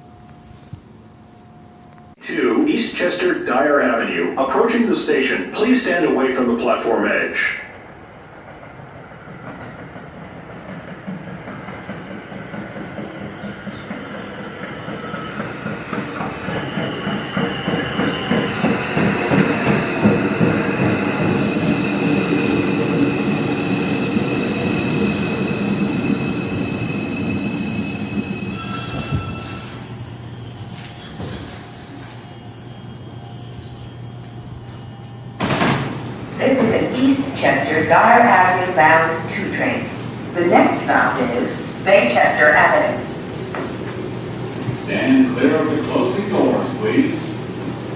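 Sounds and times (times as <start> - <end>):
high-pitched brake squeal: 11.8 - 47.9.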